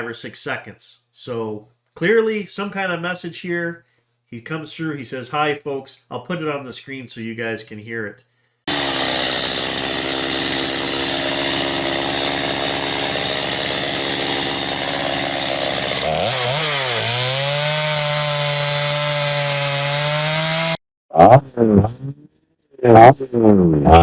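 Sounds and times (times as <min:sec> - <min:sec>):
person speaking: 0:00.0 - 0:08.2
chainsaw engine running: 0:08.7 - 0:20.8.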